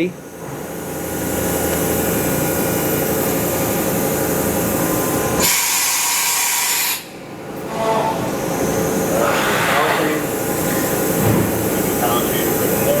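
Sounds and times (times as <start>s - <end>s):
machine mechanical hum: 0.0s - 13.0s
loud hiss of air: 5.4s - 7.2s.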